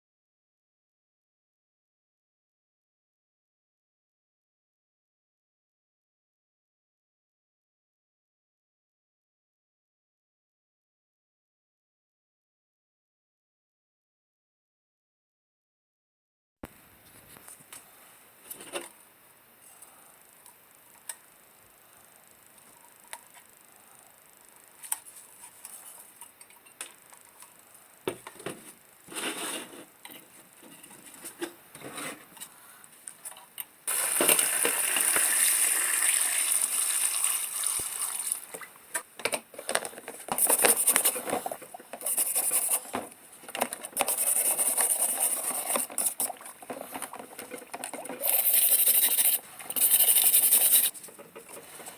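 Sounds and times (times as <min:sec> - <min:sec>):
water gushing: 0:33.9 - 0:38.6.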